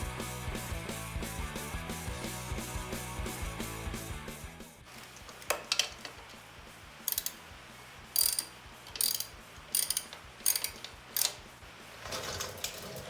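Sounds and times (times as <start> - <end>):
ratchet wrench clicking: 7.0 - 7.5, 8.1 - 11.5.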